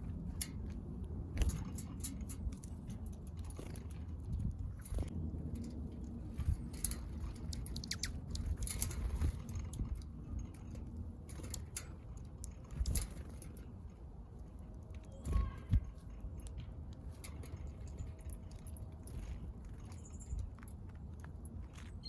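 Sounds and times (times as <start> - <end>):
birds pecking at seed: 0.0 - 22.0
faint high bird chirps: 7.7 - 8.2.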